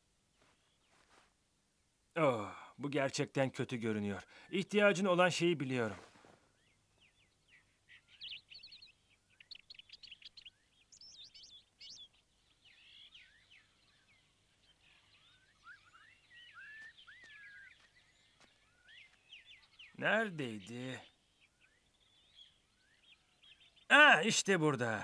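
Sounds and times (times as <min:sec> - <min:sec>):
birds chirping trills: 0:06.5 - 0:25.0
birds whistling calls: 0:06.6 - 0:20.0.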